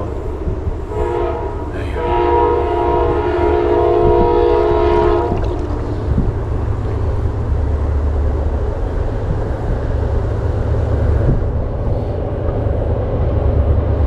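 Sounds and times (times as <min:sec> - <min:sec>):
train horn chord: 0:00.0 - 0:05.6
low rumble: 0:00.0 - 0:14.0.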